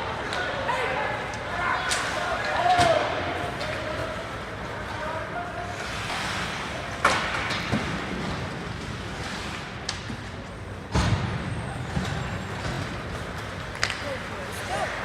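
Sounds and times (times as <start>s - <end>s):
hockey sticks and puck knocking: 7.0s - 8.9s, 12.6s - 14.3s.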